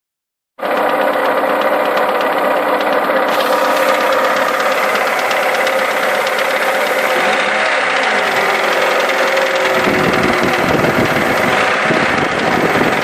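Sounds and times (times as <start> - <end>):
engine clicking chatter: 0.6 - 13.0
deep engine rumble: 3.2 - 13.0.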